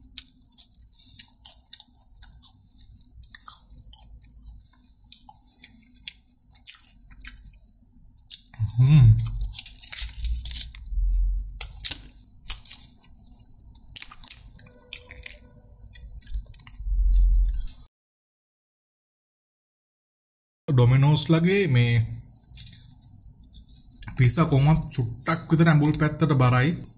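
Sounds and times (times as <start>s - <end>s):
chewing and biting food: 0.0s - 17.8s
crunchy crackles: 8.3s - 17.8s.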